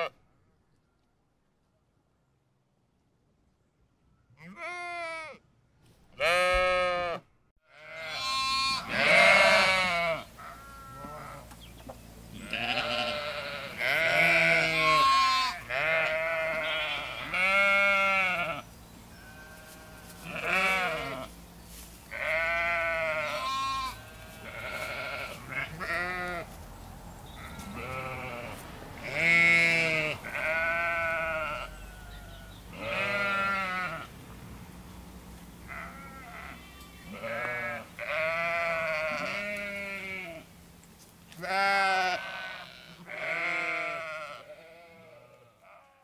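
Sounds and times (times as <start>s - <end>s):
sheep bleating: 4.4s - 5.4s, 6.2s - 11.5s, 12.3s - 21.3s, 22.1s - 26.5s, 27.3s - 34.1s, 35.7s - 40.5s, 41.4s - 46.0s.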